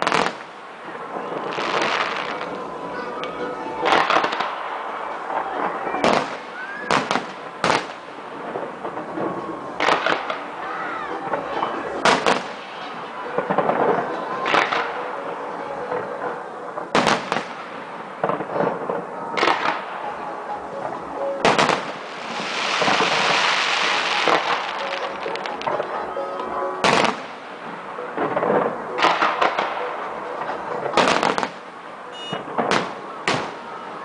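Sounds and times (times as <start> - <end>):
fireworks crackling hiss: 0.0 - 3.2, 16.7 - 26.2
fireworks shells bursting: 21.4 - 25.9.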